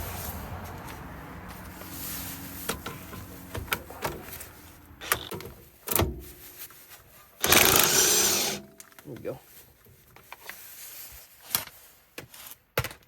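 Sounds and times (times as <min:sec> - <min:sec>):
tools clicking and knocking: 0:07.4 - 0:09.0.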